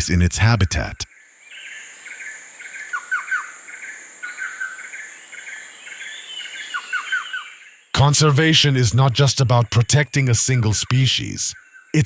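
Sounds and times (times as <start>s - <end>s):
birds chirping: 0.0s - 12.0s
insect drone: 1.1s - 7.9s.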